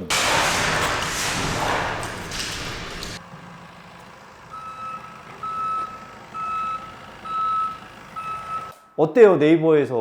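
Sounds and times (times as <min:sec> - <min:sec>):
loud rushing noise: 0:00.0 - 0:03.2
vehicle reversing alarm beeping: 0:04.5 - 0:09.0.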